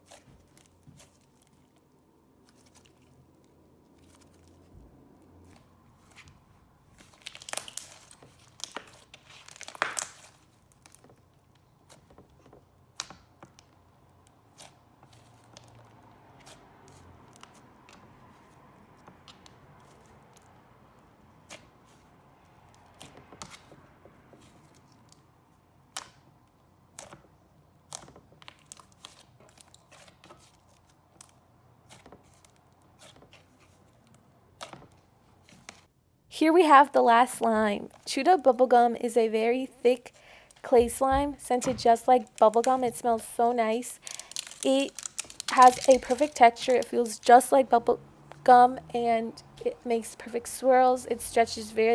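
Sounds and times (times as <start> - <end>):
slime clicking and crackling: 7.0 - 12.1, 27.8 - 33.2, 40.4 - 48.6.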